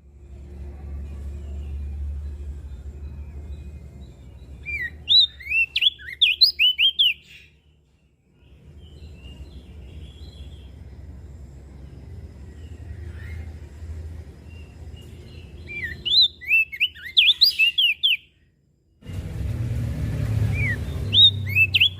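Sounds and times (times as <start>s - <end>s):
low steady rumble: 0.0s - 5.6s, 7.6s - 16.1s, 18.6s - 21.9s
faint bird chirps: 0.0s - 18.6s, 20.4s - 21.9s
bird whistling song: 1.5s - 7.7s, 14.4s - 18.4s, 20.4s - 21.9s.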